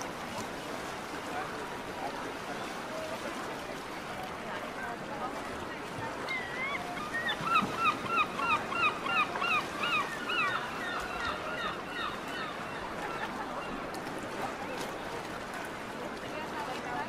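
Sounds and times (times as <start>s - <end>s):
bird honking calls: 6.3s - 13.3s.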